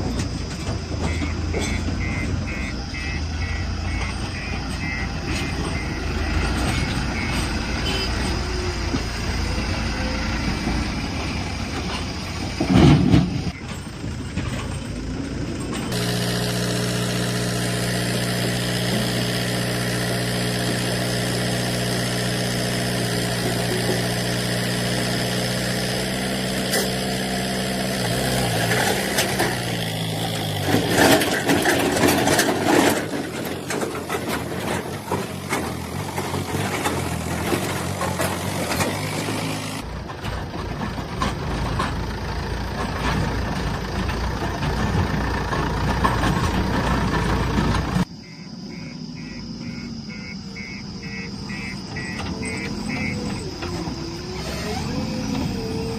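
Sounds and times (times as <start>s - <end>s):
loud rough noise: 0.0s - 48.1s
heavy diesel engine running: 0.0s - 55.9s
fast repeating beep: 48.2s - 53.2s.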